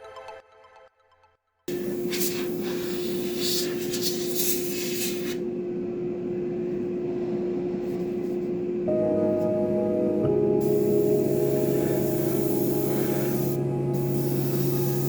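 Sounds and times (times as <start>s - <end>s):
hissing scratchy noise: 1.7s - 5.5s, 10.7s - 15.0s
small machine humming: 1.7s - 15.0s.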